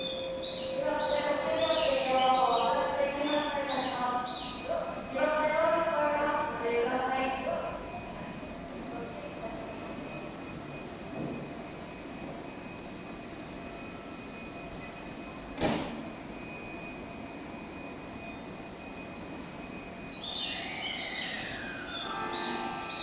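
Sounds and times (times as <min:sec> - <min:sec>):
electric train humming: 0:00.0 - 0:23.0
high chirping tones: 0:20.1 - 0:23.0.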